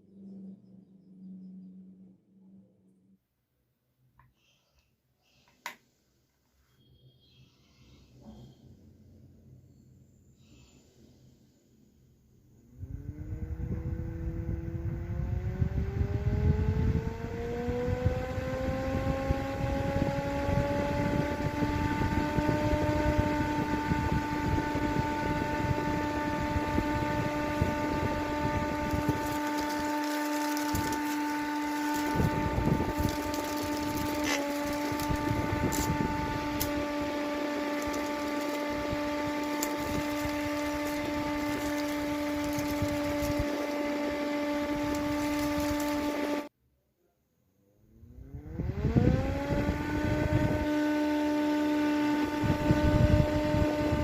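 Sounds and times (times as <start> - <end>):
small motor whine: 12.6 - 46.5, 47.9 - 54.0.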